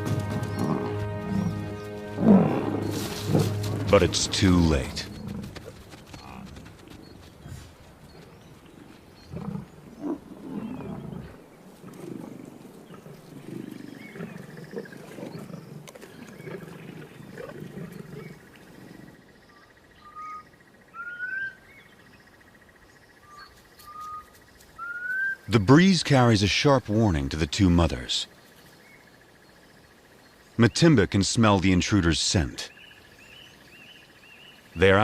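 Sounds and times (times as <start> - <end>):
lions calling: 0.0 - 21.6
bird whistling: 24.8 - 25.5.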